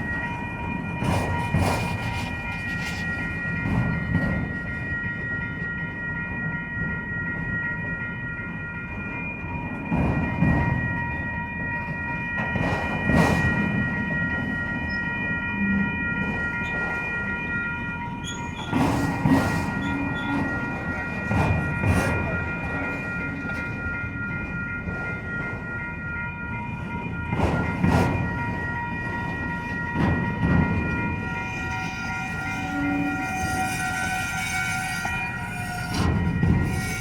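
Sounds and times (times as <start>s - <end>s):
freight train cars rumbling: 0.0s - 37.0s
wheels clacking over rail joints: 18.2s - 23.8s, 26.8s - 37.0s.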